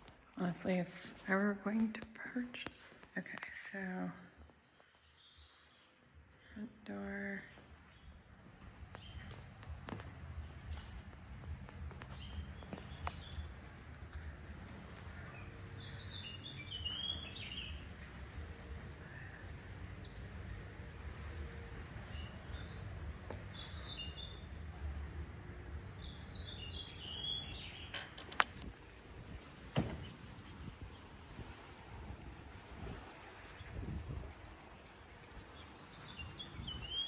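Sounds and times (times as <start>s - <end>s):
songbird chirping: 0.1s - 31.2s, 33.4s - 37.0s
low steady rumble: 6.4s - 27.1s.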